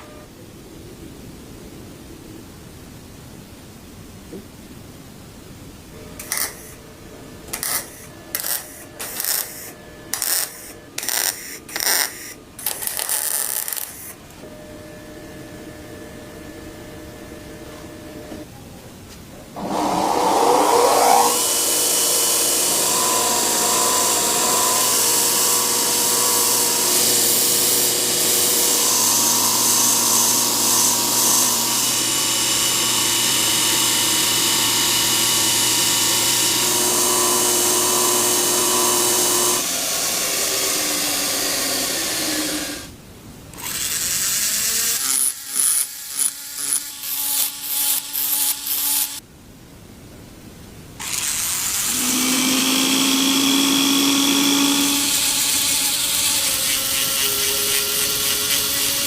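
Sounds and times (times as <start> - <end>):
electric power tool whining: 6.2 - 6.8, 7.5 - 18.4, 19.6 - 42.9, 51.0 - 59.0.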